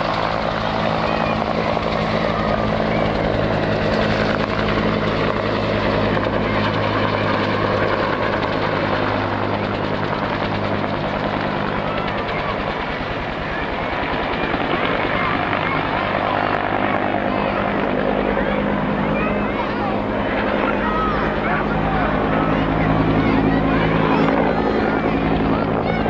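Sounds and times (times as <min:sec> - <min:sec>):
helicopter engine and wash noise: 0:00.0 - 0:26.0
helicopter rotor hum: 0:00.0 - 0:26.0.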